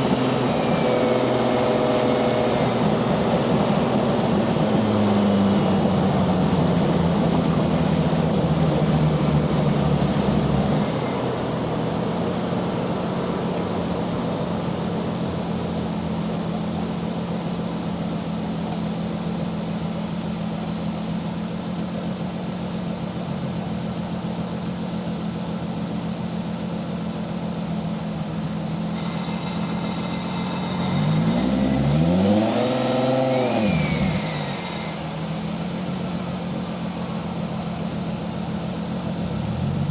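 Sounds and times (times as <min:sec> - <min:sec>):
faint turbo whistle: 0:00.0 - 0:04.9, 0:28.5 - 0:38.0
car engine revving: 0:00.0 - 0:21.0, 0:28.3 - 0:39.9.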